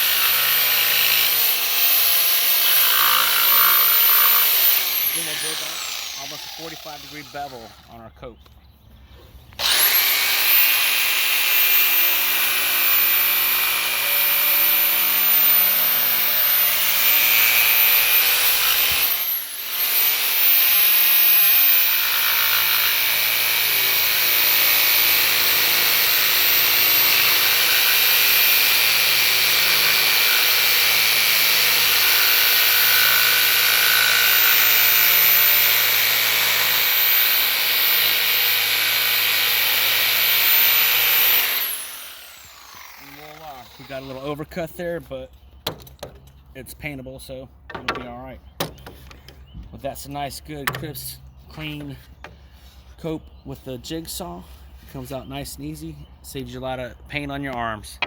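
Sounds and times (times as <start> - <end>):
jigsaw sawing wood: 0.0 - 8.0, 9.6 - 44.4.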